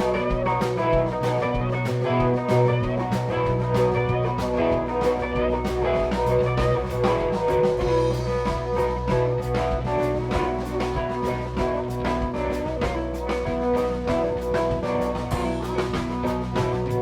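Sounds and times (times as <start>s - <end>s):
bass guitar: 0.0s - 17.0s
drums: 0.0s - 17.0s
electric guitar: 0.0s - 17.0s.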